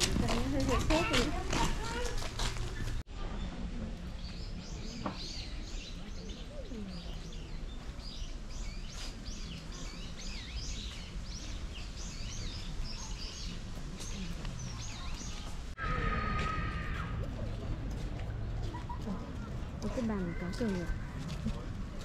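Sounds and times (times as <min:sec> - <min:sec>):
small birds chirping: 0:00.0 - 0:15.8
outdoor background noise: 0:00.0 - 0:22.0.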